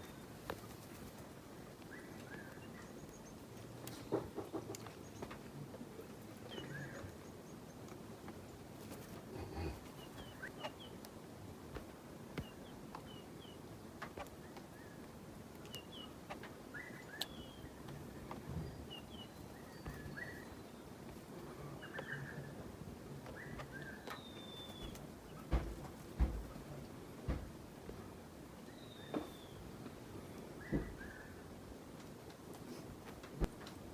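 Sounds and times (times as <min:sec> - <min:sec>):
faint bird chirps: 0:06.4 - 0:07.8, 0:09.0 - 0:11.0, 0:14.4 - 0:25.5, 0:28.6 - 0:29.6, 0:30.6 - 0:31.4.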